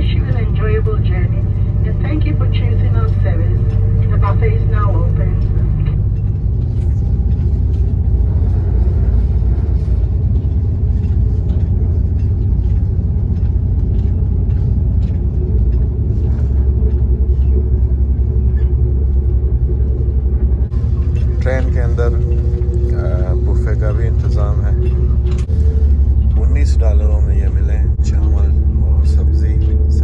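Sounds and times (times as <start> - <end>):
diesel railcar rumble: 0.0 - 30.0
wheels clicking on track: 2.0 - 30.0.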